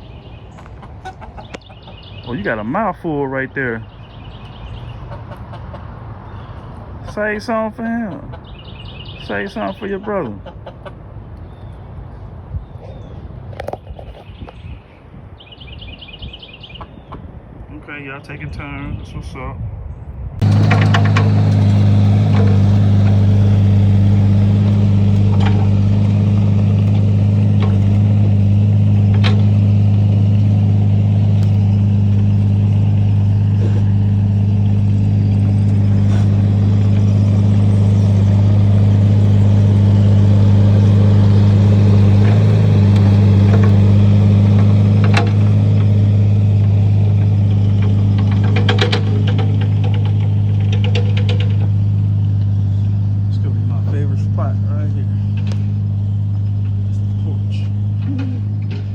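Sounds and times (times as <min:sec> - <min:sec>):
engine droning steadily: 0:20.2 - 0:58.9.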